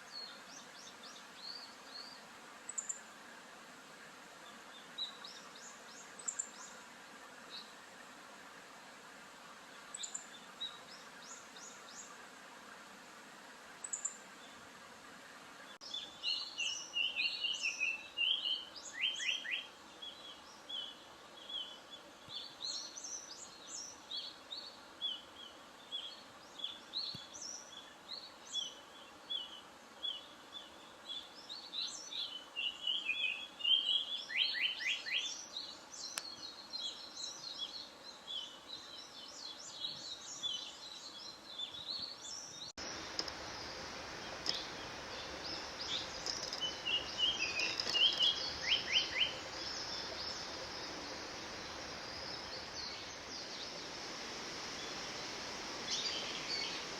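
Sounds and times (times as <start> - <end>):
faint high chirps: 42.8 - 56.9.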